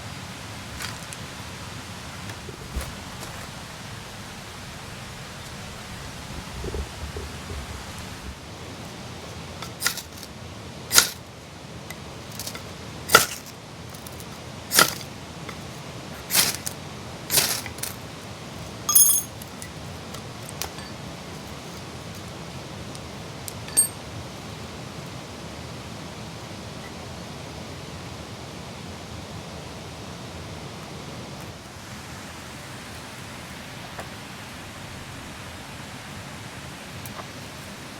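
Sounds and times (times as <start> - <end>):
rain hissing: 0.0 - 13.4
brief metallic ring: 18.9 - 19.4, 23.7 - 24.0.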